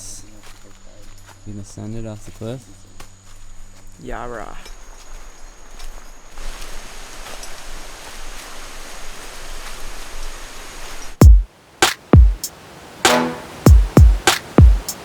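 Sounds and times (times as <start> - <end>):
rush of falling water: 6.3 - 15.0
electronic music with kick drums: 11.2 - 12.5, 13.1 - 15.0.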